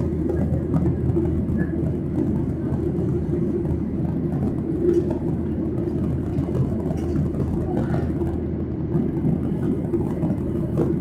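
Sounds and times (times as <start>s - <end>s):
airplane cabin engine and airflow rush: 0.0s - 11.0s.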